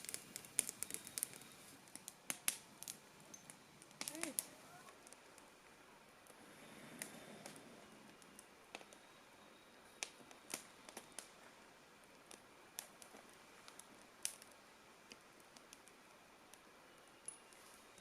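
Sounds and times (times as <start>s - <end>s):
sharp fire pops: 0.0s - 5.4s, 6.3s - 9.0s, 10.0s - 11.4s, 12.1s - 17.6s
campfire crackling: 0.0s - 18.0s.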